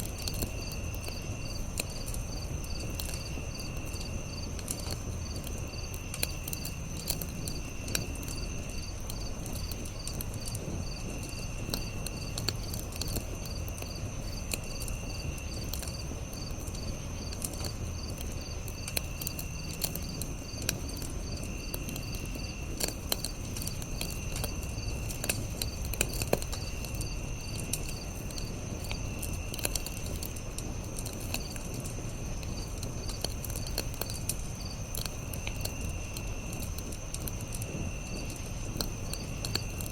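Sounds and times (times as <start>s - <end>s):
campfire crackling and popping: 0.0s - 39.9s
crickets chirping: 0.0s - 39.9s.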